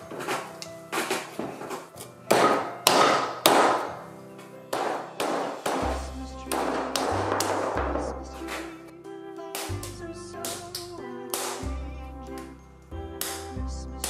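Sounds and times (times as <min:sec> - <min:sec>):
dough being punched and kneaded: 0:00.0 - 0:04.0, 0:04.8 - 0:08.7, 0:09.6 - 0:11.9, 0:13.2 - 0:14.0
background music with bass: 0:05.8 - 0:14.0.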